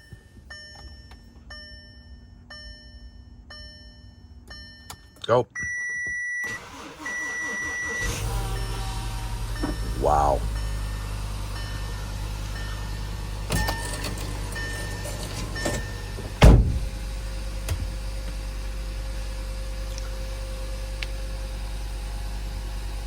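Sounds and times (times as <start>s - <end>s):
car engine idling: 8.0s - 13.5s
loud thump: 16.4s - 16.9s.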